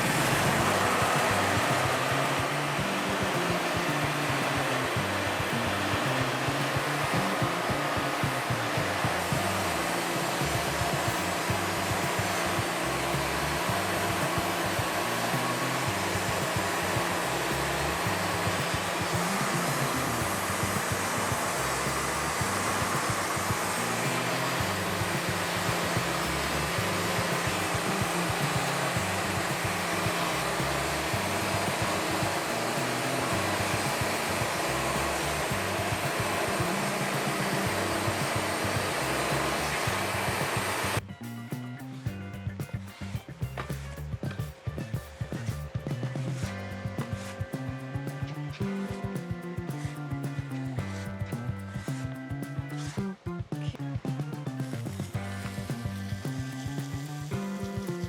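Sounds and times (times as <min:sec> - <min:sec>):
steady rushing machine noise: 0:00.0 - 0:41.1, 0:41.9 - 0:53.2, 0:54.4 - 0:58.0
background music with low bass: 0:00.0 - 0:58.0
band saw cutting timber: 0:00.0 - 0:58.0.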